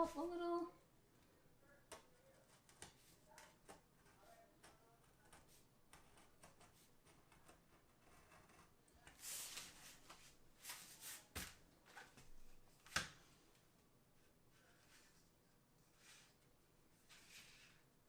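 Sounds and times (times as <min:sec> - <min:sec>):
rustling and scraping of tile sheet: 0:09.0 - 0:12.3, 0:14.5 - 0:17.9.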